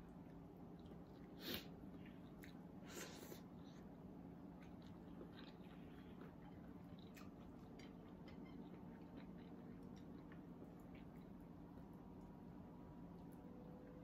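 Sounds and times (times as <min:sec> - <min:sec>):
person chewing food: 0:00.1 - 0:12.4
low hum: 0:03.8 - 0:14.0.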